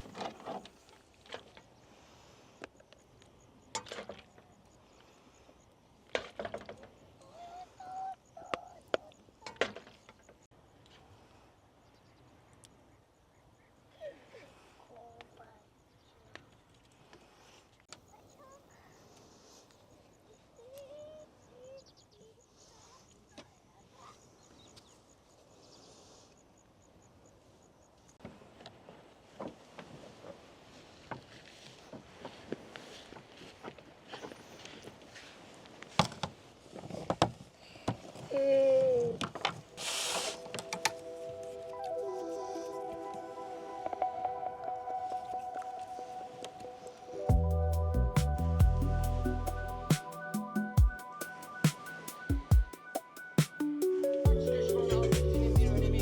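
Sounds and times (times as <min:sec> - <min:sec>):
faint chirps: 0:06.9 - 0:10.5, 0:11.6 - 0:28.2, 0:39.7 - 0:56.0.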